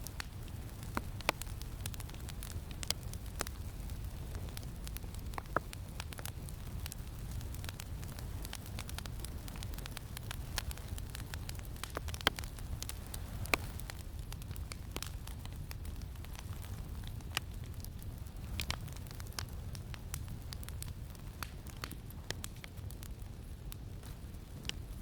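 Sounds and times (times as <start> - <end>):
campfire crackling and popping: 0.0 - 25.0
low rumble of wind: 0.0 - 25.0.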